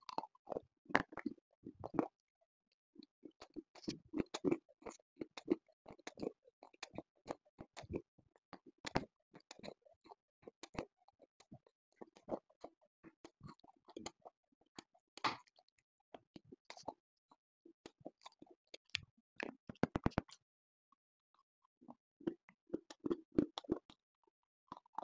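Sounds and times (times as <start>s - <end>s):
crunching and chewing: 0.0s - 2.1s, 3.3s - 15.7s, 22.2s - 24.0s, 24.7s - 25.0s.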